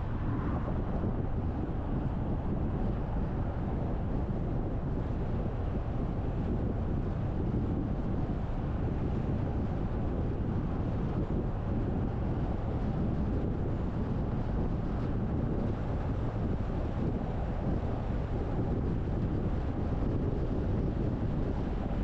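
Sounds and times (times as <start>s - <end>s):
car wind and road rumble: 0.0s - 22.0s.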